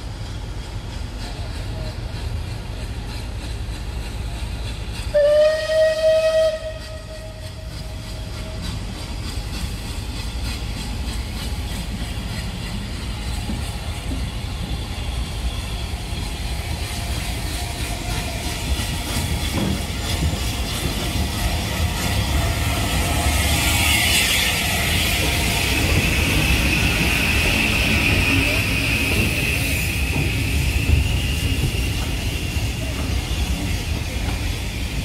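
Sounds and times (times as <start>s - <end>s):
low rumble of moving train: 0.0s - 35.0s
locomotive warning horn blast: 5.2s - 7.4s.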